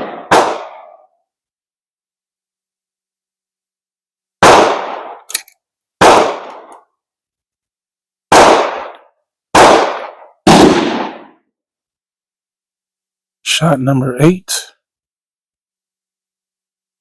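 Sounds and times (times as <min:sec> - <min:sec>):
gunshots: 0:00.0 - 0:01.1, 0:04.4 - 0:05.3, 0:06.0 - 0:06.7, 0:08.3 - 0:11.4.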